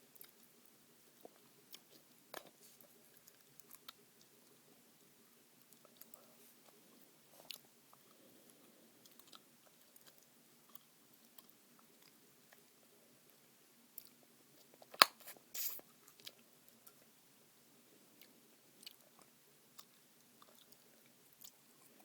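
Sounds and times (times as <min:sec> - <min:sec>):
loud gum snap: 0:15.0 - 0:15.8.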